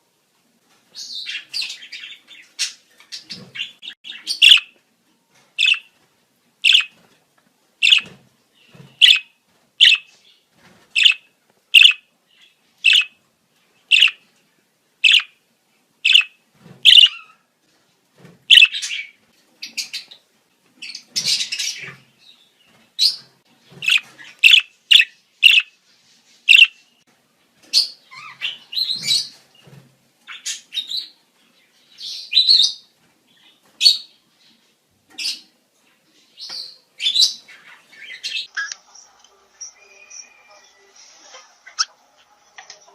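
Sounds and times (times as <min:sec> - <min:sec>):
budgerigars chirping and chattering: 0:01.0 - 0:04.8, 0:05.6 - 0:05.9, 0:06.6 - 0:07.0, 0:07.8 - 0:10.1, 0:11.0 - 0:13.2, 0:13.9 - 0:14.2, 0:15.0 - 0:15.4, 0:16.0 - 0:17.4, 0:18.5 - 0:20.2, 0:20.8 - 0:22.1, 0:23.0 - 0:25.8, 0:26.5 - 0:26.8, 0:27.7 - 0:29.4, 0:36.5 - 0:40.3.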